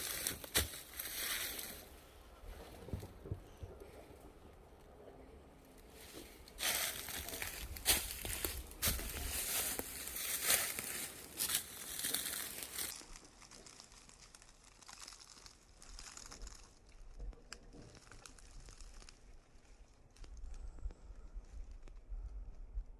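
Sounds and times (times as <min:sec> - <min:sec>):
dry leaves rustling and crackling: 0:00.0 - 0:03.1, 0:05.6 - 0:20.4.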